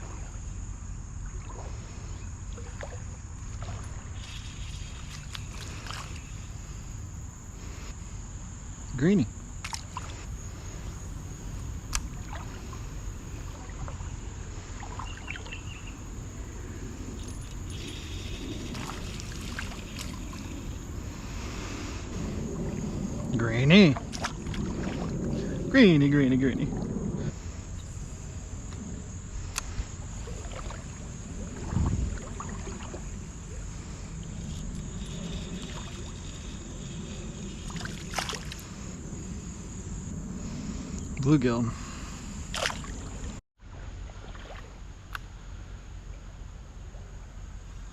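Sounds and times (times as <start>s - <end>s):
water rumbling: 0.0s - 47.7s
insect drone: 0.0s - 47.9s
wind: 0.0s - 47.9s
shallow creek rushing: 9.1s - 26.4s
faint chirps: 14.7s - 20.8s.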